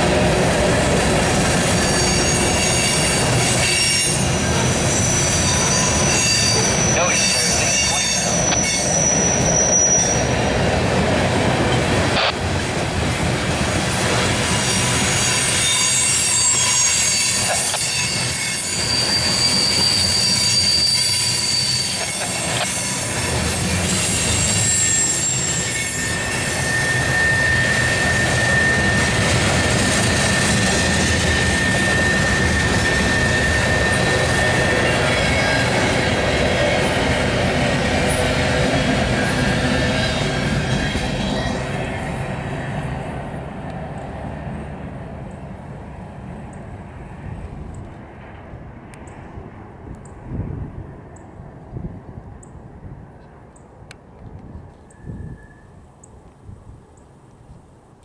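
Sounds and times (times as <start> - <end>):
steel wheels rumbling on rails: 0.0 - 53.1
high-pitched wheel squeals: 1.6 - 10.4, 14.6 - 36.1.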